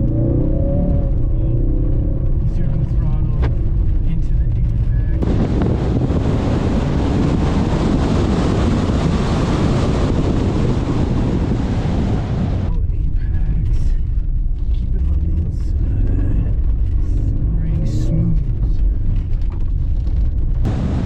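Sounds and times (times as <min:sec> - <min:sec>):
car engine revving hard: 0:05.2 - 0:12.7, 0:20.7 - 0:21.0.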